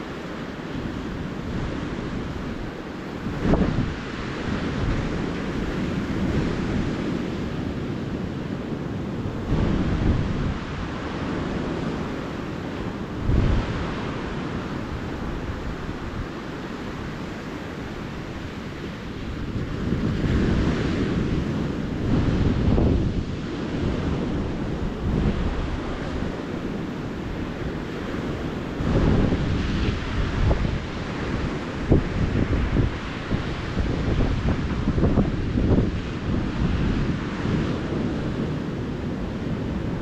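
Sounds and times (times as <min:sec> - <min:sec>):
ocean surf washing onto beach: 0:00.0 - 0:40.0
waves breaking: 0:00.0 - 0:40.0.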